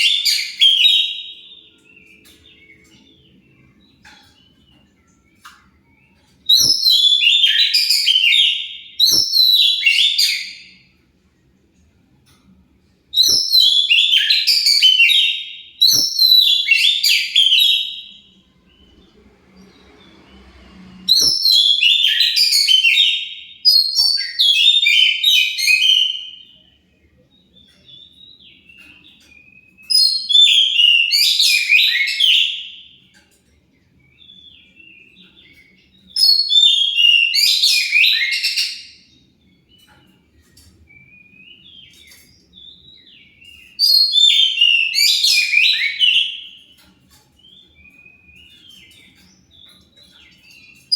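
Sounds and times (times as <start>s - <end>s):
magpie-robin singing whistled phrases: 0.0s - 10.8s, 13.1s - 18.8s, 21.1s - 26.7s, 27.5s - 33.1s, 34.0s - 39.2s, 40.9s - 46.8s.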